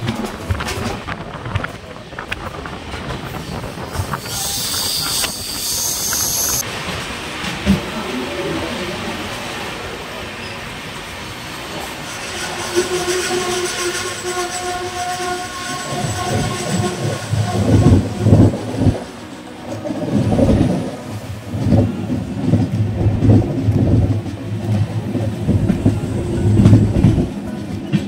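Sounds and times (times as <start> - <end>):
wind on microphone: 0.0 - 6.6, 15.9 - 19.1
train wheels clattering on rails: 0.0 - 8.2, 15.6 - 28.0.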